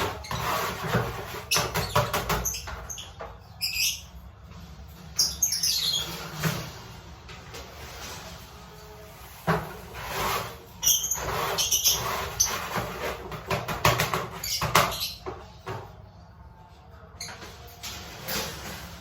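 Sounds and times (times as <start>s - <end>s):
birds chirping: 0.0s - 6.4s, 10.8s - 16.3s.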